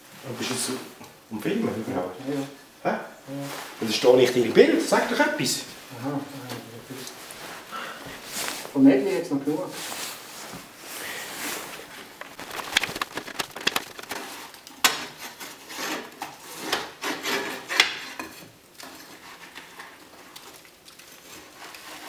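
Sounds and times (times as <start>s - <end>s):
scraping and rubbing: 11.1s - 14.4s
sharp clicks and knocks: 12.0s - 14.2s.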